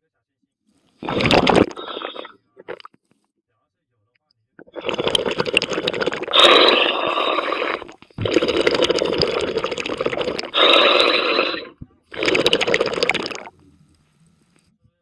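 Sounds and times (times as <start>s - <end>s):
underwater breath bubbling: 1.0s - 2.9s, 4.6s - 13.6s.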